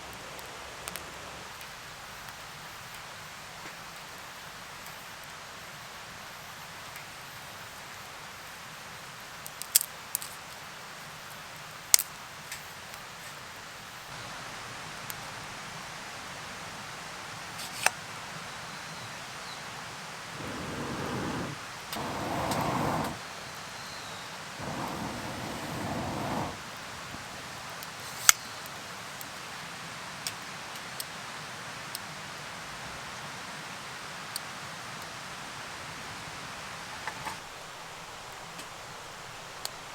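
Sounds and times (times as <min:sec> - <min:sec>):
rain hissing: 0:19.9 - 0:27.8.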